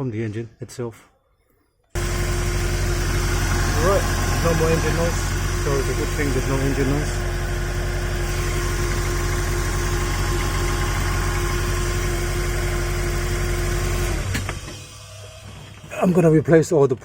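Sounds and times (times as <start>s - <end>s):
car engine idling: 2.0s - 15.6s.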